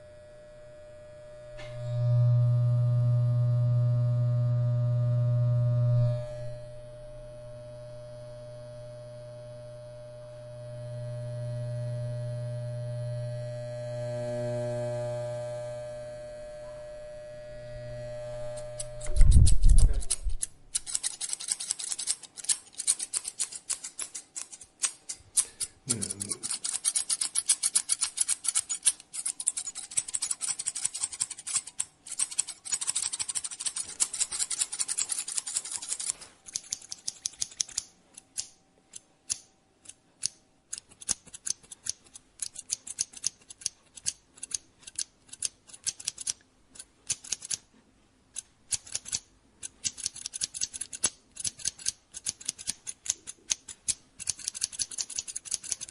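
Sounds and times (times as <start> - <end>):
scissors snipping hair: 18.6 - 47.6, 48.4 - 55.9.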